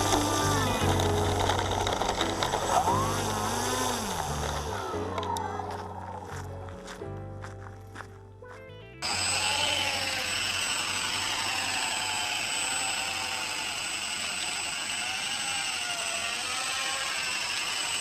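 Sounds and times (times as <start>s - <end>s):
model helicopter motor whine: 0.0s - 5.4s, 9.0s - 18.0s.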